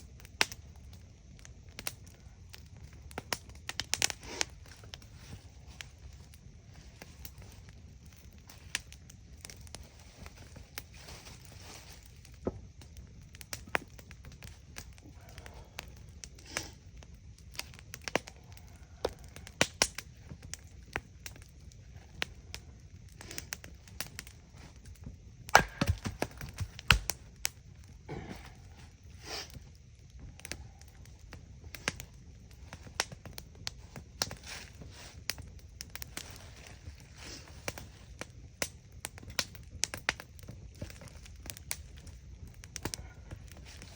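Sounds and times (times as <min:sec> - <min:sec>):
campfire crackling and popping: 0:00.0 - 0:43.9.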